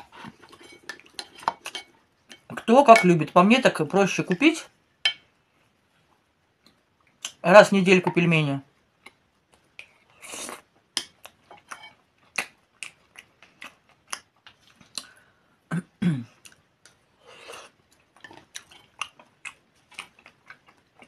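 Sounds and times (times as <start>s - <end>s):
wet chewing and lip smacks: 12.2s - 15.2s, 17.9s - 21.0s
soft breaths: 14.9s - 15.7s.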